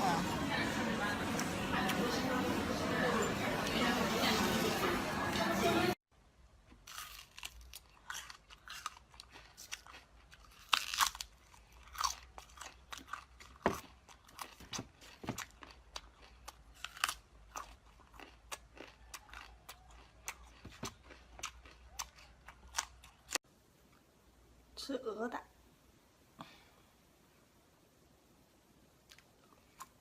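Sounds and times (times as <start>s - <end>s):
crunching and chewing crisp food: 6.6s - 24.0s, 28.9s - 30.0s.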